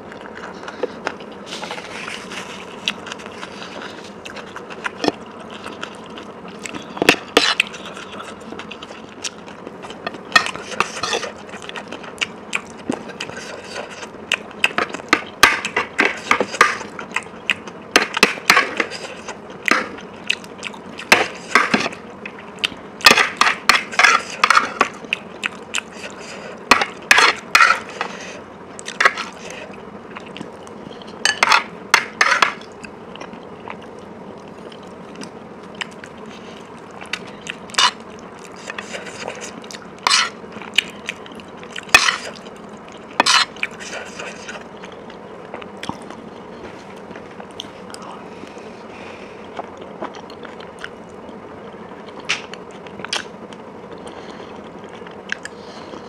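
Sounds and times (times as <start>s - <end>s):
chewing mouth sounds: 0.1s - 21.6s, 49.4s - 56.0s.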